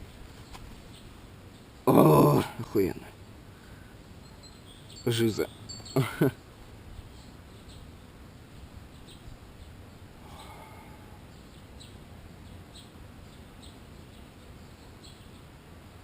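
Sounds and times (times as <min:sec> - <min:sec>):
bird chirping: 0:04.1 - 0:15.6.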